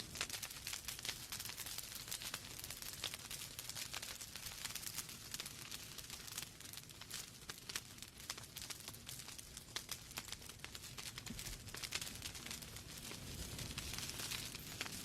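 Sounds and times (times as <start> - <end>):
logs crackling and popping: 0.0 - 15.0
flames hissing: 11.0 - 15.0.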